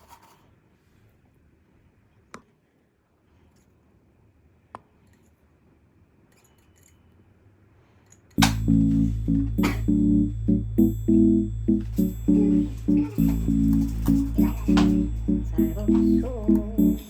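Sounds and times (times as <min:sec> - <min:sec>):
background music with bass: 0:08.4 - 0:17.0.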